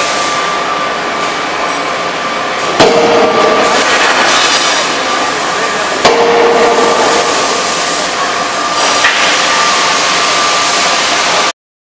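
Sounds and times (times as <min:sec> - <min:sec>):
forging hammer noise: 0:02.6 - 0:11.5
sharp hammer blow: 0:02.8 - 0:05.0, 0:06.0 - 0:07.8
ringing hammer blow: 0:06.0 - 0:07.6.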